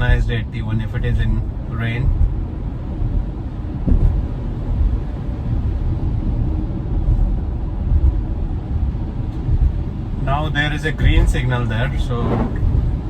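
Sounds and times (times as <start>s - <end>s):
road and tyre rumble: 0.0s - 13.0s.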